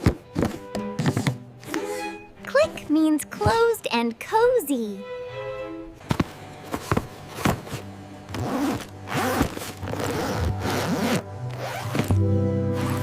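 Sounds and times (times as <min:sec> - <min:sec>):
background music with held notes: 0:00.0 - 0:13.0
zipper-like rasping: 0:07.6 - 0:13.0.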